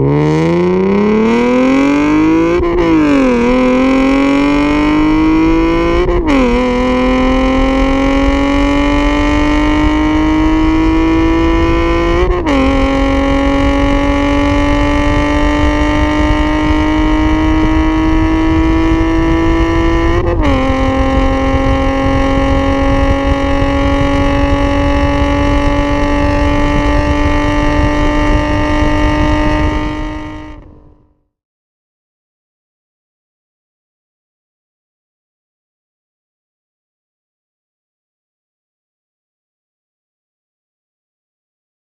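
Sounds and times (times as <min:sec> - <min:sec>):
car engine accelerating through gears: 0:00.0 - 0:31.1.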